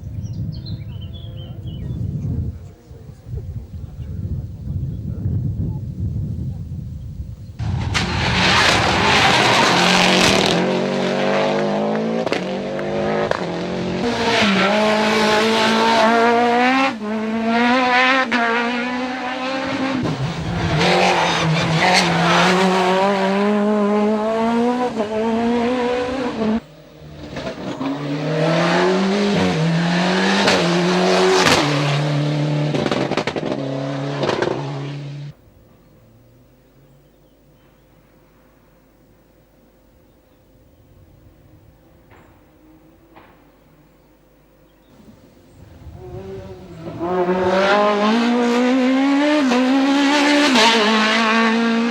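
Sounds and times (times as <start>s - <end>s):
rally car engine revving: 7.6s - 35.4s, 44.8s - 51.9s.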